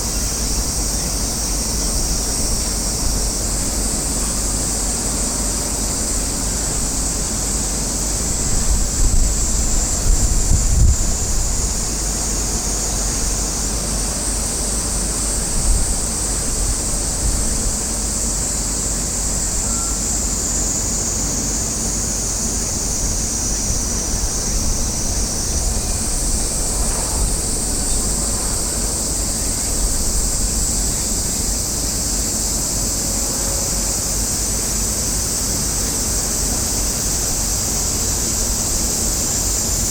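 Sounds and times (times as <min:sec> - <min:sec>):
steady high hiss: 0:00.0 - 0:39.9
wind buffeting microphone: 0:08.1 - 0:13.5, 0:22.6 - 0:31.7.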